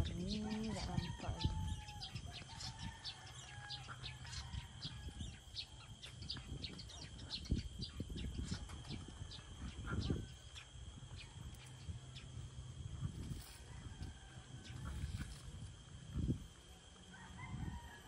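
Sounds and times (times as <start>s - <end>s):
birds chirping: 0.0s - 12.6s.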